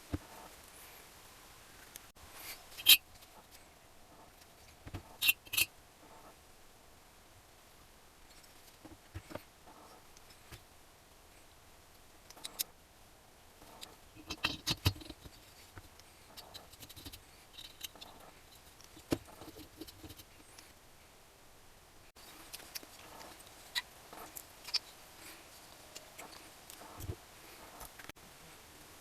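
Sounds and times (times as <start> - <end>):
metal parts and tools clicking: 5.1 - 5.7, 12.3 - 12.7, 13.7 - 15.4, 16.4 - 20.3.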